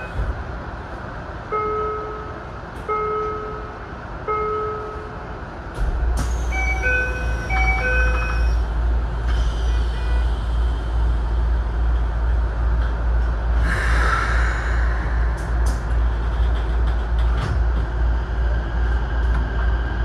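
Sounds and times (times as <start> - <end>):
low rumble: 10.6 - 20.0.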